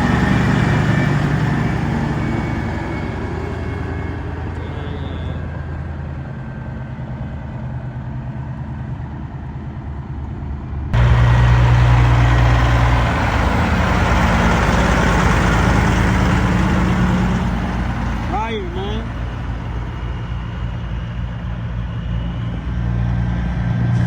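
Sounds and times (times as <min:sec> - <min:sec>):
truck diesel engine idling: 0:00.0 - 0:09.0, 0:11.0 - 0:22.6
close engine droning with hiss: 0:04.0 - 0:06.3, 0:09.0 - 0:24.0.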